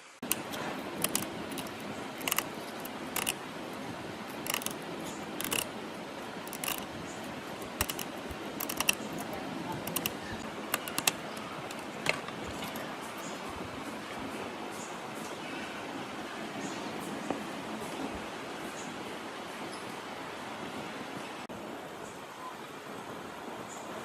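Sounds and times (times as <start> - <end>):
steady background hiss: 0.0 - 24.0
small parts and tools clicking: 0.2 - 13.4.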